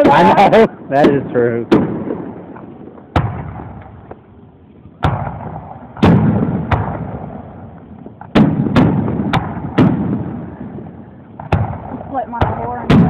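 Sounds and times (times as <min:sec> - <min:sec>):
firework shells bursting: 0:00.0 - 0:13.0.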